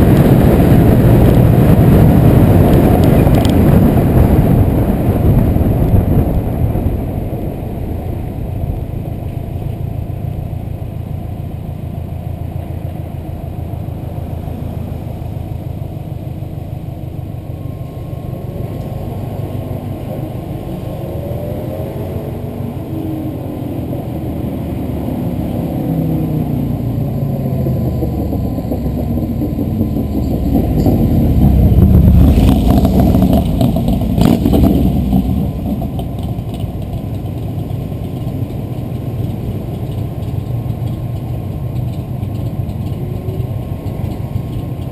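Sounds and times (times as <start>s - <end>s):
car engine accelerating: 0.0s - 44.9s.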